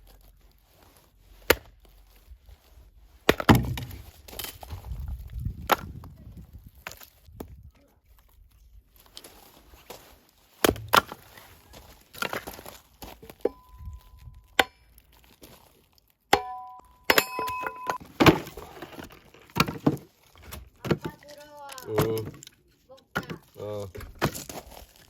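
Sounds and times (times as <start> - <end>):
axe chopping wood: 1.4 - 1.8, 3.2 - 4.5, 5.6 - 6.1, 10.6 - 11.4, 14.6 - 14.9, 16.3 - 21.2, 24.0 - 24.6
short ringing tones: 16.4 - 18.0.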